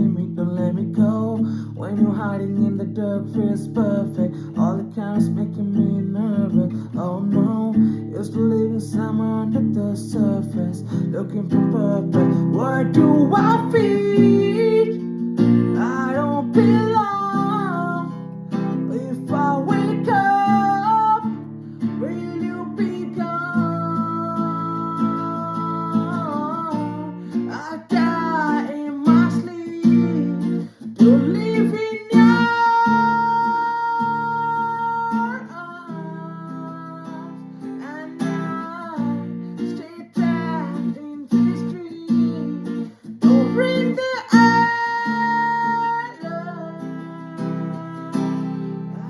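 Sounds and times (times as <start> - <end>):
acoustic guitar strumming: 0.0 - 49.0.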